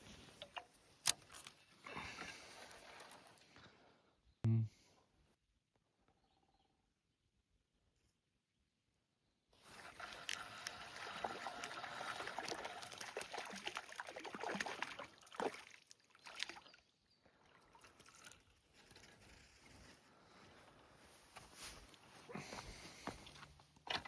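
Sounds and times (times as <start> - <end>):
water splashing and trickling: 1.8 - 3.9, 9.6 - 19.8, 23.2 - 24.0.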